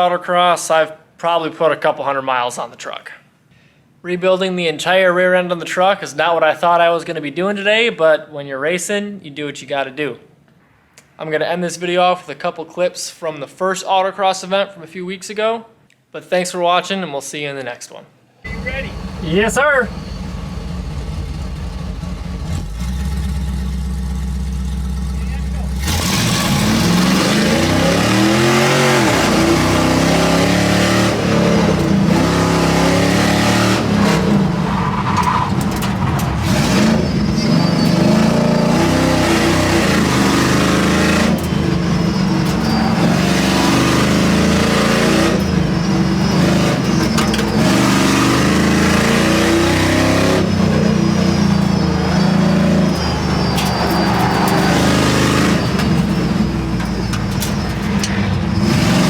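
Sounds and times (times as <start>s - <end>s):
tires squealing: 18.5s - 59.0s
truck engine revving: 18.5s - 59.0s.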